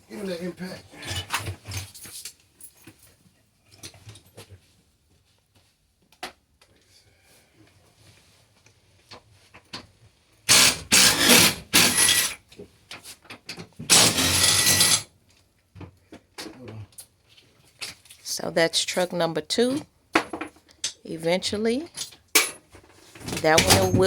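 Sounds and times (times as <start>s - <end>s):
impact driver bursts: 10.5s - 12.4s, 13.9s - 15.1s.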